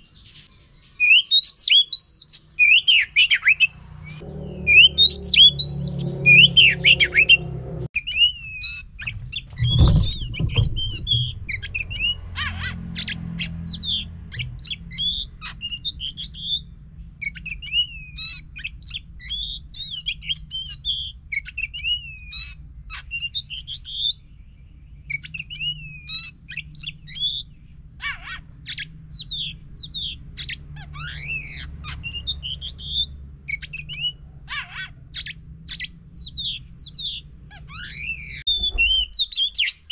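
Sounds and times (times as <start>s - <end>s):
magpie-robin singing: 0.0s - 39.9s
low hum: 3.9s - 7.9s, 8.8s - 12.4s
dull thump: 9.0s - 11.9s.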